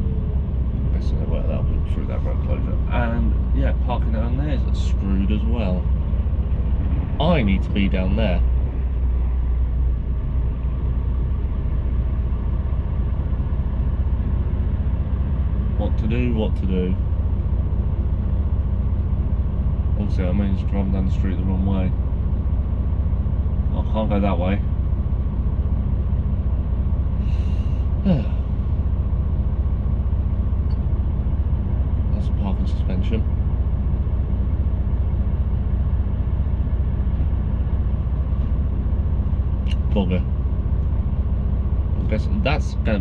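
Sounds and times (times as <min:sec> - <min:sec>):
truck diesel engine running: 0:00.0 - 0:43.0
person breathing in: 0:27.2 - 0:28.4
person sighing: 0:27.2 - 0:28.6.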